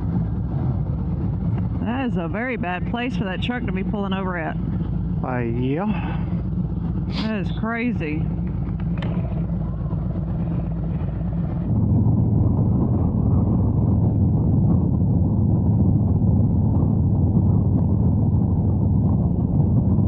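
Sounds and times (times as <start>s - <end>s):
motorcycle engine running: 0.0s - 20.0s
wind buffeting the microphone: 0.0s - 20.0s.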